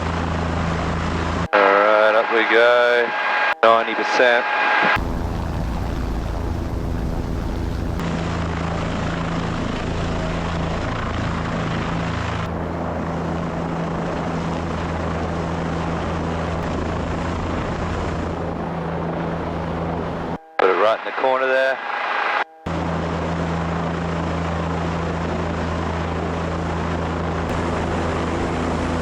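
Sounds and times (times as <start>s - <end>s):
helicopter engine and rotor: 0.0s - 3.8s, 4.4s - 20.8s, 22.7s - 29.0s.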